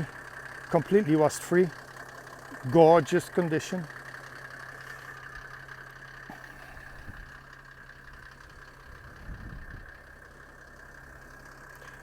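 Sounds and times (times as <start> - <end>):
diesel engine idling faintly: 0.0 - 12.0
steady higher hum: 4.8 - 11.8.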